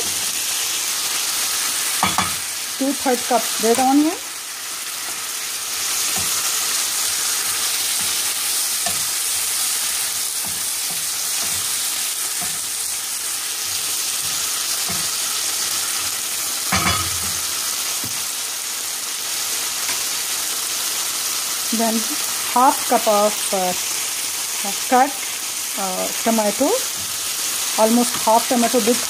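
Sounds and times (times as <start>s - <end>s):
chicken and onion sizzling: 0.0s - 29.0s
spatula scraping and knocking pan: 5.9s - 13.0s, 13.7s - 15.4s.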